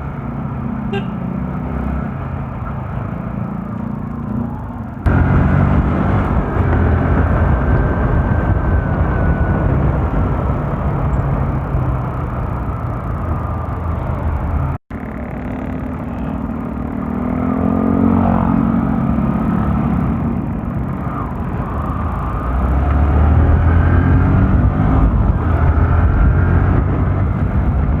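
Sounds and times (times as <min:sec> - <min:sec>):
motorcycle engine running: 0:00.0 - 0:28.0
wind rush: 0:05.0 - 0:12.0.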